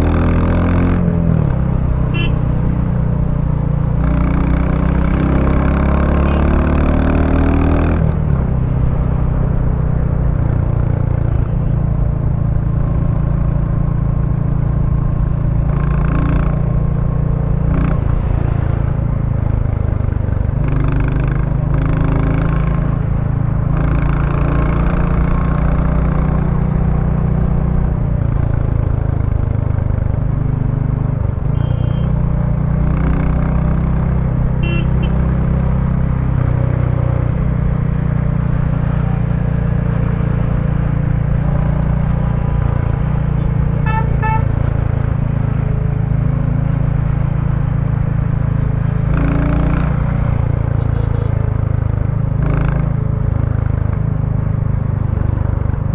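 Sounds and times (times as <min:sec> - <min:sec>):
short horn toots: 0:02.1 - 0:02.5, 0:06.2 - 0:06.6, 0:31.5 - 0:32.2, 0:34.6 - 0:35.2, 0:43.8 - 0:44.5
motorcycle engine running: 0:08.5 - 0:55.9.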